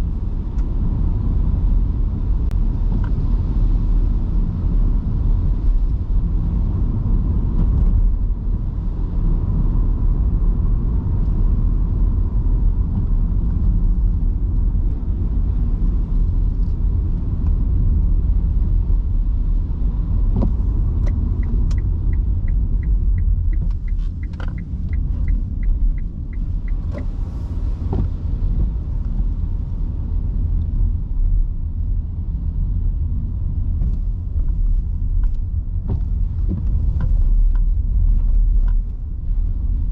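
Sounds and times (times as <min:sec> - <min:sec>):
road and tyre rumble: 0:00.0 - 0:39.9
even ticking: 0:21.1 - 0:27.2.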